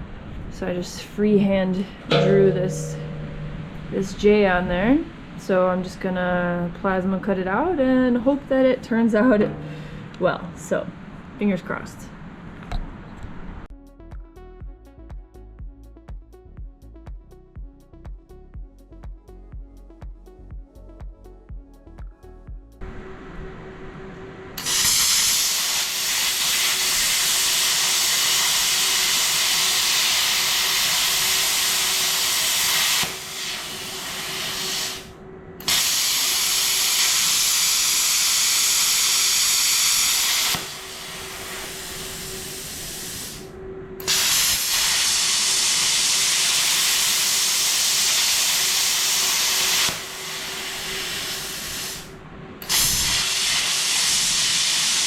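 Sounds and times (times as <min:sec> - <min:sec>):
steady hum: 0:00.0 - 0:13.7, 0:40.5 - 0:45.2
plasma cutter hissing: 0:24.6 - 0:55.0.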